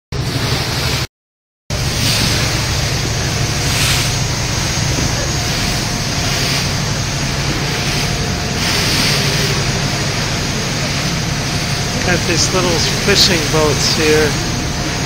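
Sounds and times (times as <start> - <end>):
ferry engine drone: 0.1 - 1.1, 1.7 - 15.0
water along hull: 0.1 - 1.1, 1.7 - 15.0
wind on microphone: 1.7 - 12.3.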